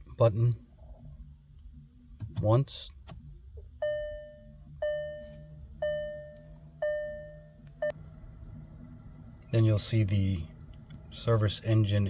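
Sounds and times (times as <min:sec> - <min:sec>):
dashboard warning chime: 0:03.8 - 0:08.0.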